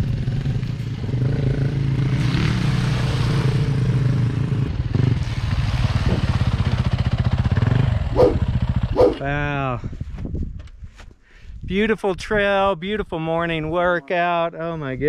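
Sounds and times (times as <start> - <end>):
dirt bike engine running: 3.7 - 9.4.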